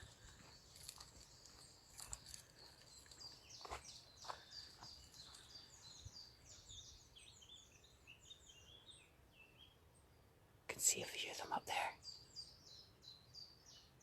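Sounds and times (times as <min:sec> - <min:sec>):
small songbirds chirping: 0:00.0 - 0:14.0.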